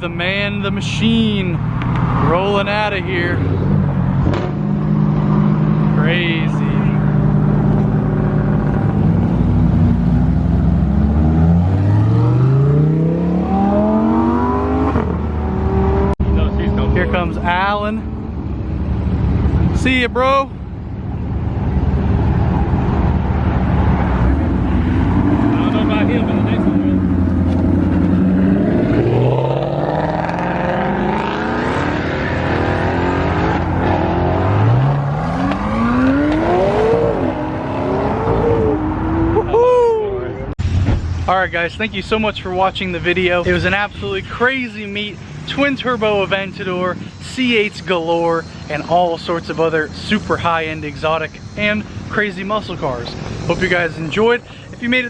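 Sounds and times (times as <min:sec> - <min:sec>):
car engine accelerating: 0:01.2 - 0:18.2, 0:21.6 - 0:40.9.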